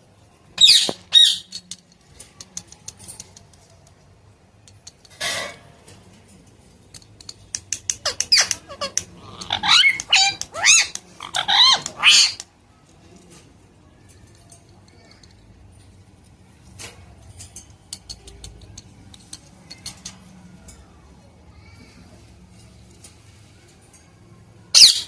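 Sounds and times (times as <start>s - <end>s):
parrot chirping and squawking: 0.6s - 1.6s, 7.9s - 12.4s, 24.7s - 25.0s
soft parrot clicks: 1.6s - 4.0s, 6.9s - 11.1s, 17.8s - 20.3s.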